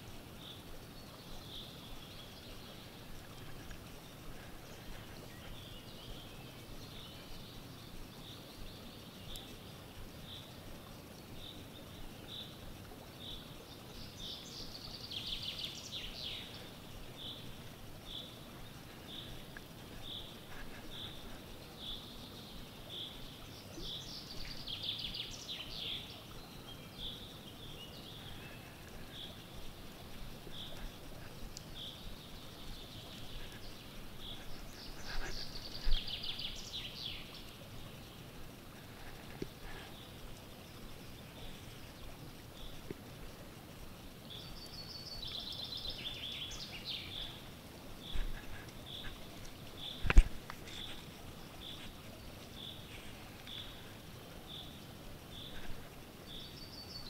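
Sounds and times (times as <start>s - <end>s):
faint steady hush: 0.0s - 57.0s.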